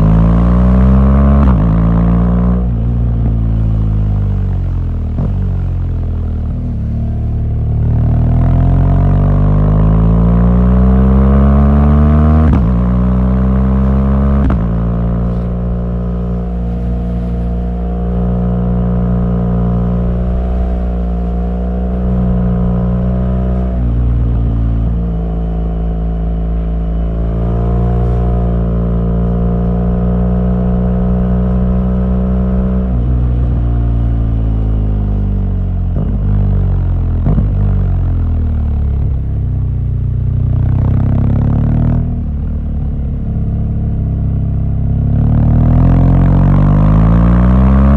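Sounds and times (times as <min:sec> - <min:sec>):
motorcycle engine revving: 0:06.4 - 0:35.2, 0:40.4 - 0:47.9.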